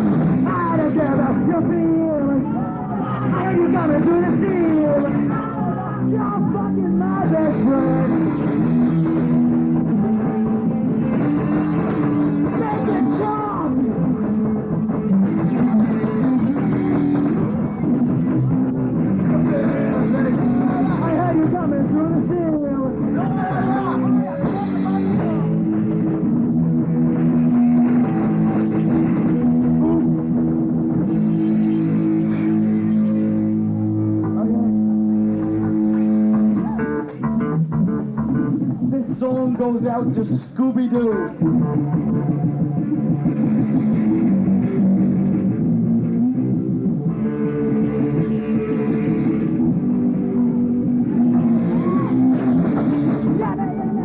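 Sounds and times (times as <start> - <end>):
drums: 0.0 - 54.0
electric guitar chords: 0.0 - 54.0
rock band playing live: 0.0 - 54.0
singing vocals: 0.5 - 8.5.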